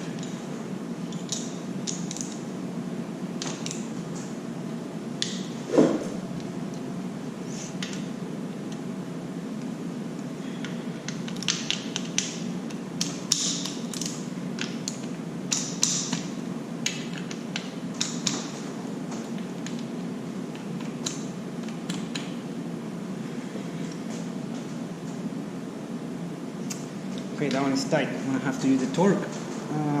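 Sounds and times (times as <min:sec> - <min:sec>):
low hum: 0:05.5 - 0:07.5.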